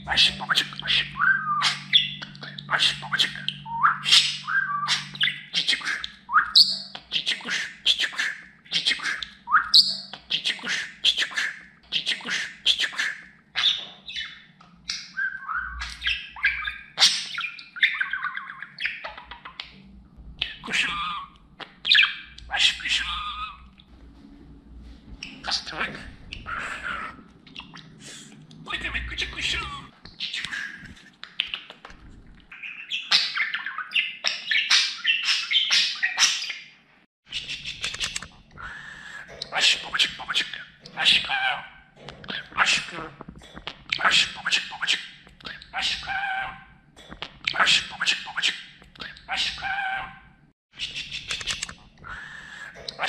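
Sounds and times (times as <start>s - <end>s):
budgerigar chattering and warbling: 0.0s - 19.8s, 37.3s - 53.0s.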